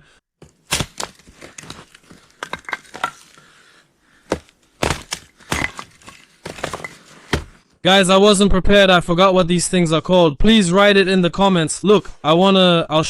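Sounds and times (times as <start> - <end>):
crunches and sharp cracks: 0.4 - 7.7.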